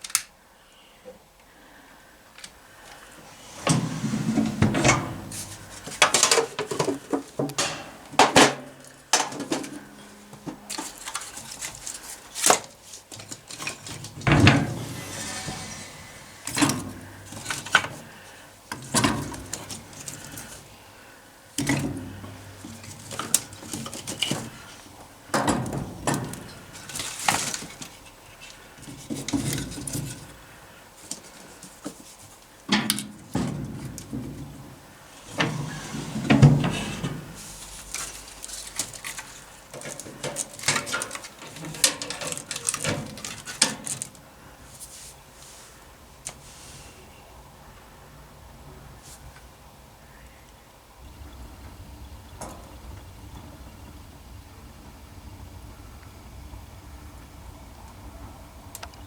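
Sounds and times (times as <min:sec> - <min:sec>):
dishes and pans clinking: 0:03.6 - 0:12.7.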